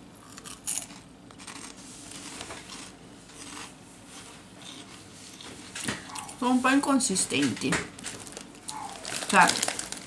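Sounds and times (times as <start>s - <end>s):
snack sticks crunching: 0.2s - 3.8s, 8.0s - 10.0s.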